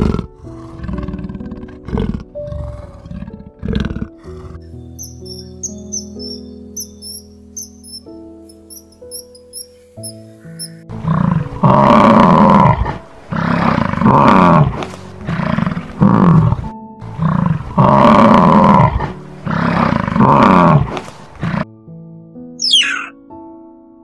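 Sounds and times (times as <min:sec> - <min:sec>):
soft background music: 0:00.0 - 0:24.0
animal calling loudly: 0:04.1 - 0:14.5, 0:22.6 - 0:23.2.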